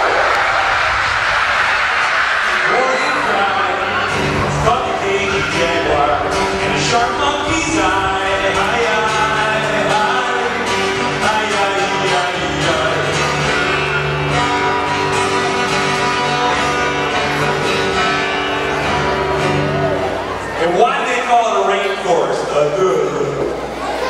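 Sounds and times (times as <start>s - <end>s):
acoustic guitar strumming: 0.8s - 23.8s
person singing: 2.6s - 13.8s.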